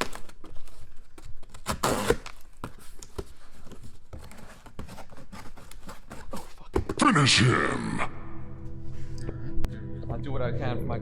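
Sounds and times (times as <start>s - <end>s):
packaging tearing and rustling: 0.0s - 6.6s.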